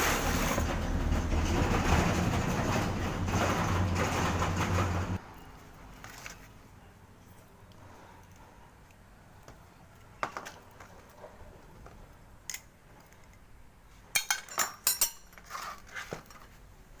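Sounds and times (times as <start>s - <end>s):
metal tools clinking and knocking: 14.1s - 15.6s.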